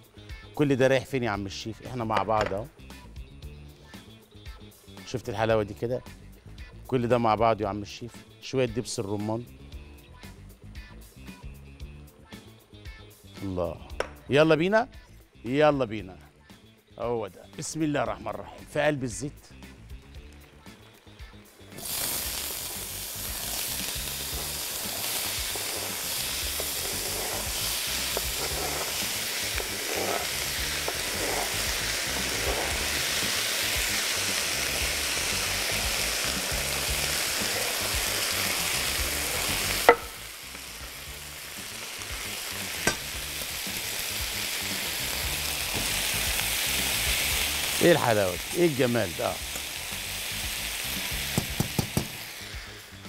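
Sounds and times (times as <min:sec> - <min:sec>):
vegetables sizzling in oil: 0:21.0 - 0:53.0.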